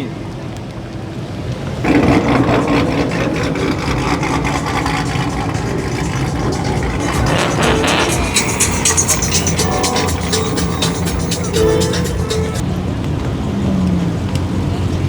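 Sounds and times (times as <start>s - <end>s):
car engine and exhaust running: 1.9s - 12.5s.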